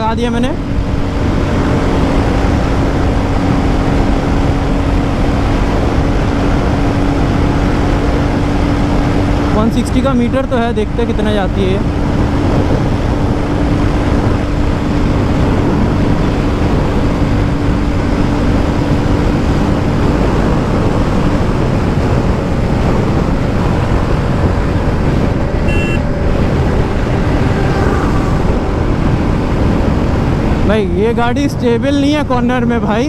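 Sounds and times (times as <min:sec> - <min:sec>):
motorcycle engine running: 0:00.0 - 0:31.0
wind rush on microphone: 0:00.0 - 0:33.0
short high beep: 0:25.6 - 0:26.0.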